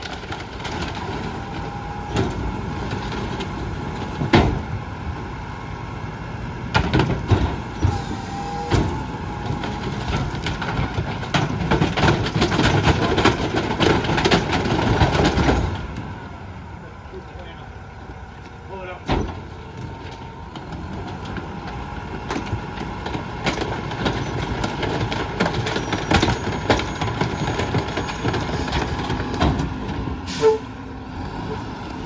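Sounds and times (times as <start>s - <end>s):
trash cracking and snapping: 0.0s - 4.7s, 6.7s - 16.1s, 19.1s - 30.2s
garbage truck engine running: 0.0s - 32.0s.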